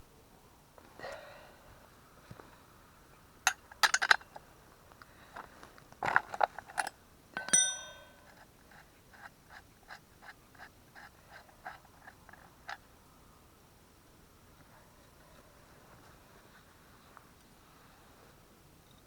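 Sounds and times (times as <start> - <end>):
handling clicks and knocks: 3.5 - 4.4, 6.1 - 8.5
metallic clinks: 6.8 - 8.3
ringing metal clank: 7.4 - 8.3.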